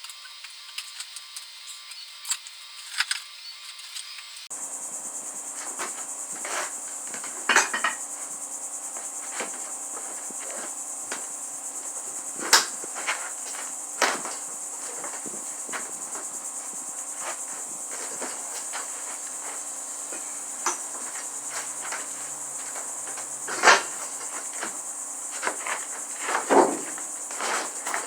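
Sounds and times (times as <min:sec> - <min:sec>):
high insect chirring: 0:00.0 - 0:28.0.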